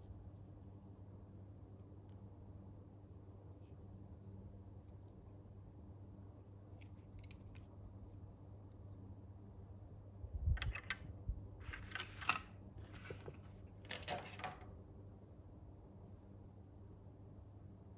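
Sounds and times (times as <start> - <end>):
toy packaging rustling: 11.6 - 14.6.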